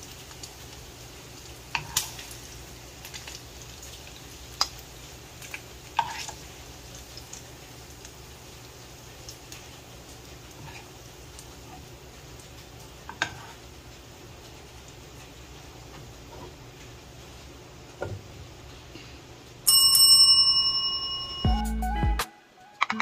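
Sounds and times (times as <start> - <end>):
low steady background noise: 0.0 - 21.5
metal spoon scraping a pan: 1.7 - 2.2, 6.0 - 6.4, 10.6 - 10.9, 13.1 - 13.6.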